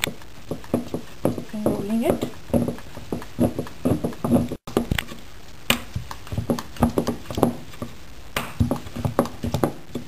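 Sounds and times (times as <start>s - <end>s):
rolling pin knocking on board: 0.0s - 4.9s, 5.7s - 10.0s.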